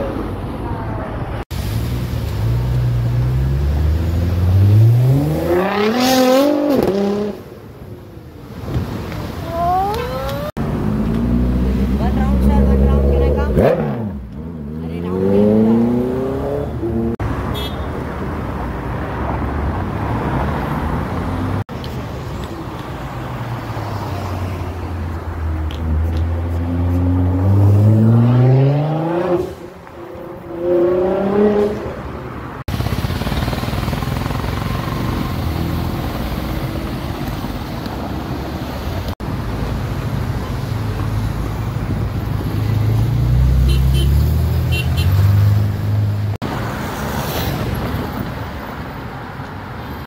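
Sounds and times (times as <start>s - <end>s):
road traffic noise: 0.0s - 50.0s
motorcycle accelerating: 32.6s - 37.8s.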